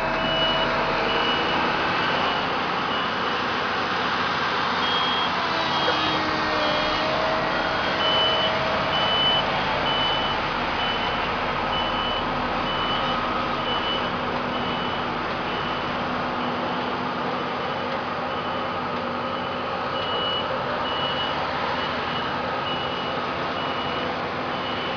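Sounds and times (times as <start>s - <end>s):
higher beeper: 0.0s - 3.2s
reversing alarm beeping: 0.0s - 3.5s, 4.8s - 24.9s
engine and site noise: 0.0s - 24.9s.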